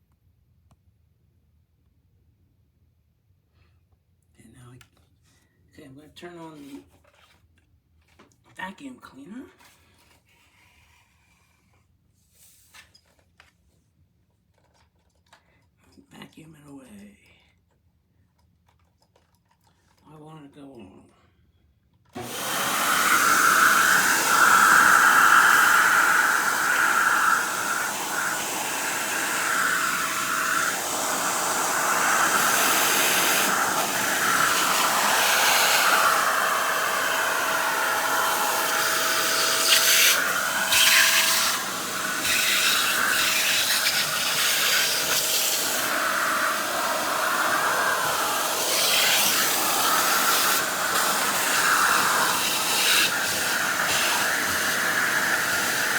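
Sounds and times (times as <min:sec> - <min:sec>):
vacuum cleaner running: 0:22.2 - 0:55.9.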